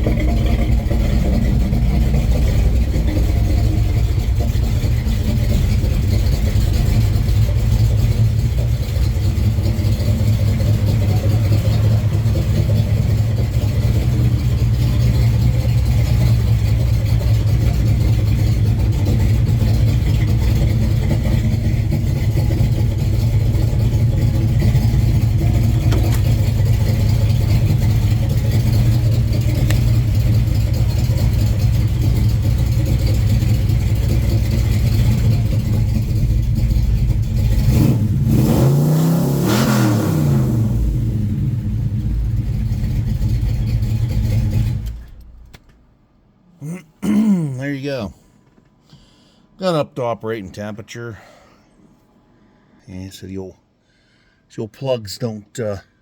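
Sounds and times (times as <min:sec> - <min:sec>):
car engine idling: 0:00.0 - 0:46.1.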